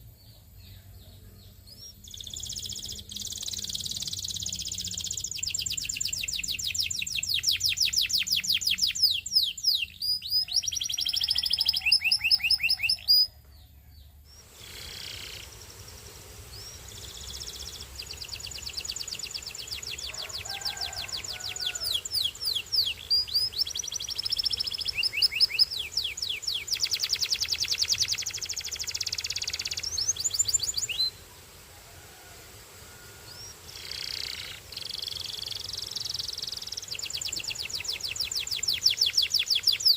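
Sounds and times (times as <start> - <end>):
canary singing trills: 0.0 - 31.2, 33.3 - 39.9.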